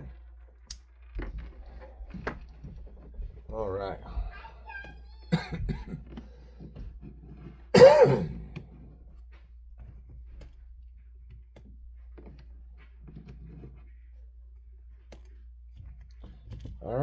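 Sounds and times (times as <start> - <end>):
man clearing throat: 5.4 - 6.0, 7.8 - 8.4.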